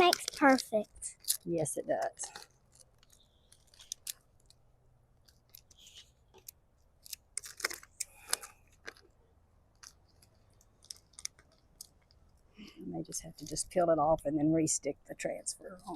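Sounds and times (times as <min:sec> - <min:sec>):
transfer sheet crackling and rustling: 0:00.0 - 0:04.5, 0:05.2 - 0:09.1.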